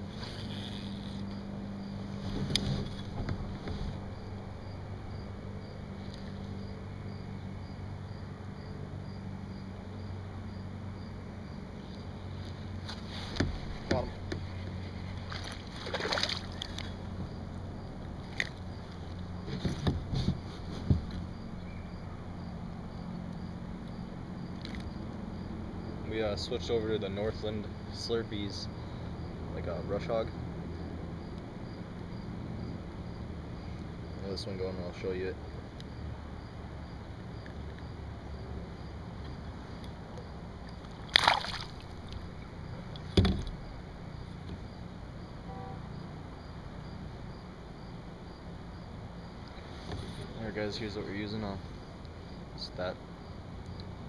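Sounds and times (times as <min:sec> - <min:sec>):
steady low rumble: 0:00.0 - 0:54.0
dull knocks against a kayak: 0:19.5 - 0:21.2, 0:43.0 - 0:43.7
low thud: 0:43.1 - 0:43.7.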